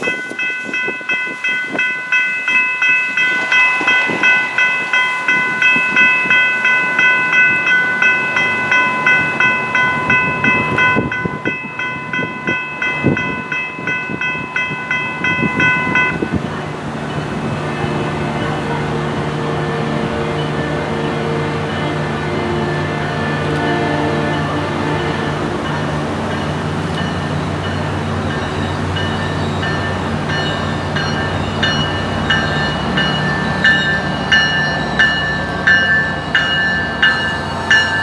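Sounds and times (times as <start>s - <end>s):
bell ringing rapidly: 0.0s - 16.4s, 28.4s - 38.0s
train wheels clicking on rails: 24.4s - 38.0s.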